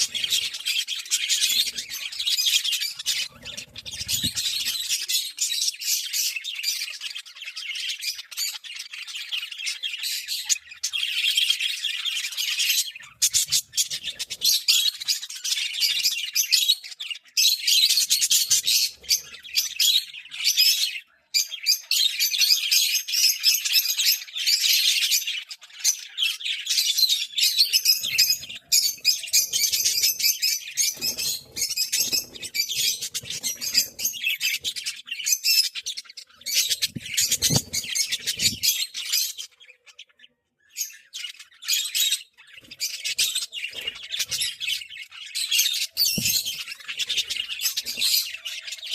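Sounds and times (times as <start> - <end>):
budgerigars chattering and chirping: 0.0 - 48.9.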